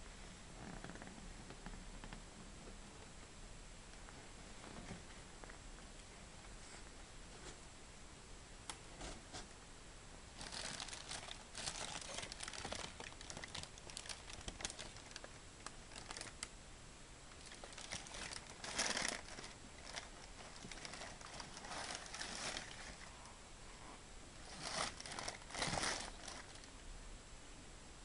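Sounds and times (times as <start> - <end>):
packaging crinkling: 10.4 - 16.5, 17.4 - 23.1, 24.4 - 26.7.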